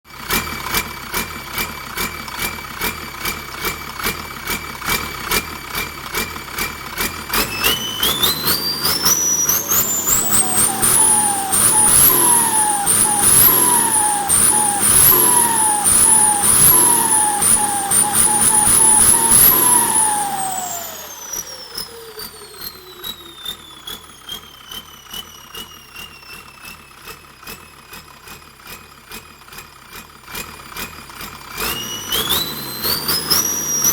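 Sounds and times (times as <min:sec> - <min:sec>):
engine idling with rhythmic knock: 0:00.1 - 0:07.9, 0:21.3 - 0:31.8
turbocharger whistling: 0:03.2 - 0:28.5, 0:29.9 - 0:33.9.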